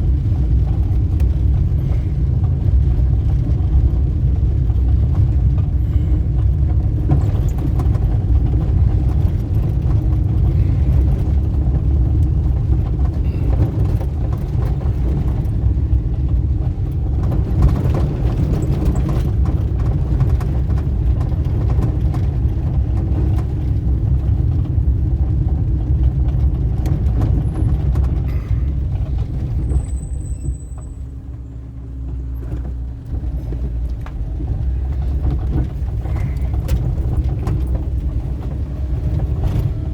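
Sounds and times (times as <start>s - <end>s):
vehicle engine and tyres rumbling: 0.0s - 39.9s.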